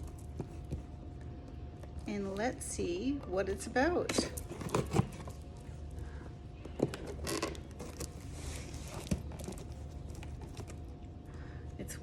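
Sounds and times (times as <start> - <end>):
cardboard creaking and rustling: 0.0 - 1.1, 4.1 - 5.9, 6.6 - 11.1.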